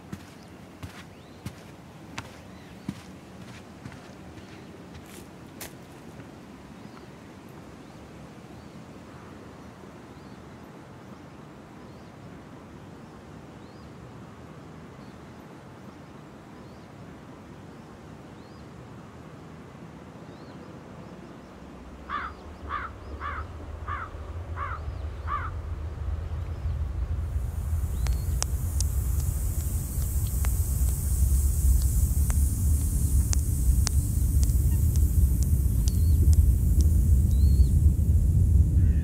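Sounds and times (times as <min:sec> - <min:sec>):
small birds chirping: 0:00.0 - 0:06.0, 0:20.3 - 0:39.0
low rumble: 0:21.8 - 0:39.0
crow cawing: 0:22.1 - 0:25.6, 0:38.8 - 0:39.0.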